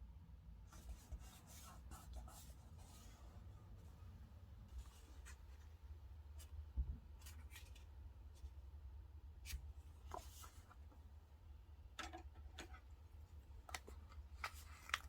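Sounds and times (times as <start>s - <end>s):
faint low hum: 0.0s - 15.0s
paper being handled: 13.6s - 15.0s.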